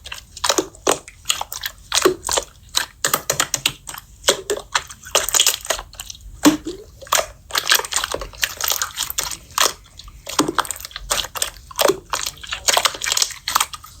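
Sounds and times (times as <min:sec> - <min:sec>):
slime squishing and popping: 0:00.0 - 0:14.0.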